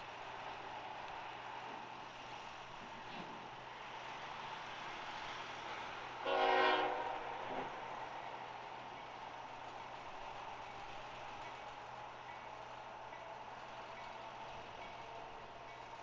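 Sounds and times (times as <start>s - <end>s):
short locomotive horn blast: 6.2s - 7.7s.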